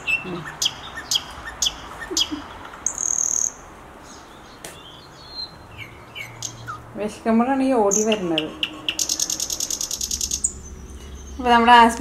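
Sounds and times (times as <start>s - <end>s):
small birds chirping: 0.0s - 12.0s
high bird whistle: 7.9s - 11.4s.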